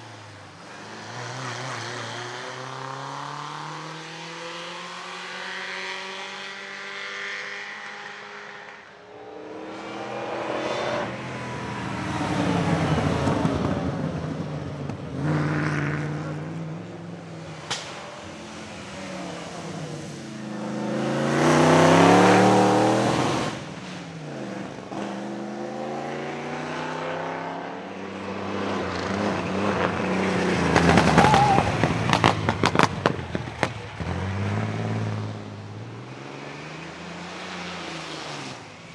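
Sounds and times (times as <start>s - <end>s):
racing car engines revving: 0.0s - 38.9s
exhaust crackles and pops: 30.6s - 35.4s.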